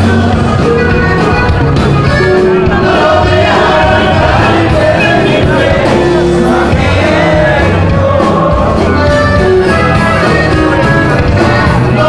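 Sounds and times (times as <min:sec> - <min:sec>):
accordion: 0:00.0 - 0:12.0
band playing with singing: 0:00.0 - 0:12.0.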